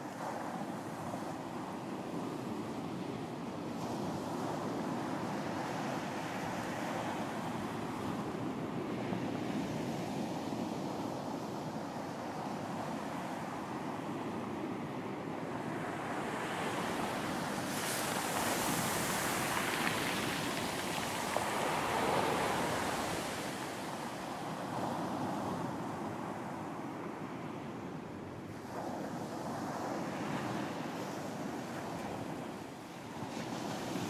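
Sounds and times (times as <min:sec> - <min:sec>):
sea waves breaking on beach: 0:15.4 - 0:26.2.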